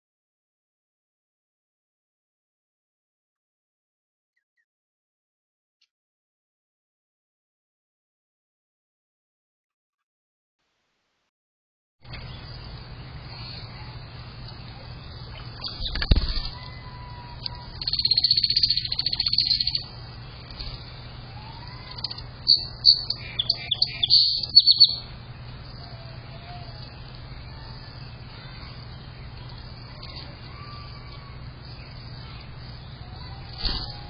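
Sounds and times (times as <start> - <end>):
faint whistled bird calls: 15.6 - 19.9, 21.3 - 25.1
songbird high trill: 15.6 - 19.9, 21.4 - 25.1.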